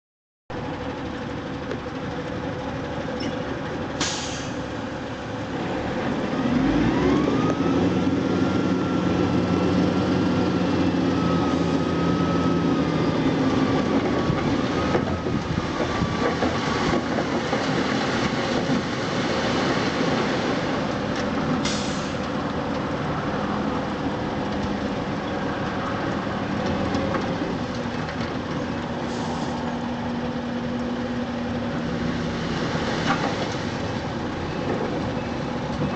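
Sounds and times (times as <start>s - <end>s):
truck diesel engine revving: 5.3s - 16.9s.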